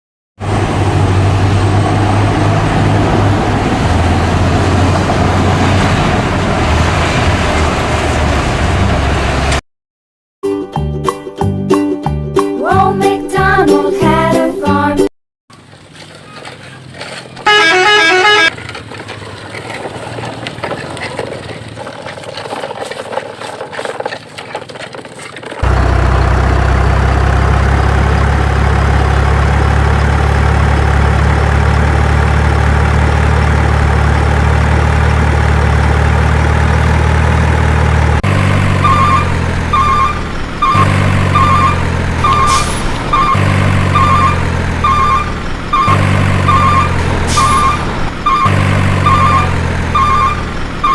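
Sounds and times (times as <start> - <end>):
truck engine drone: 0.4 - 9.6, 15.5 - 24.0, 24.6 - 50.9
truck horn toot: 17.4 - 18.6, 38.6 - 50.9
reversing beeps: 38.8 - 50.9.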